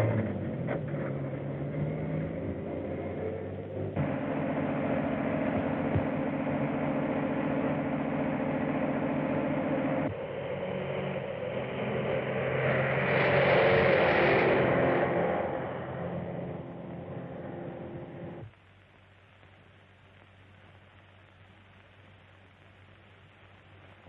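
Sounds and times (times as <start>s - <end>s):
engine running: 0.0s - 18.5s.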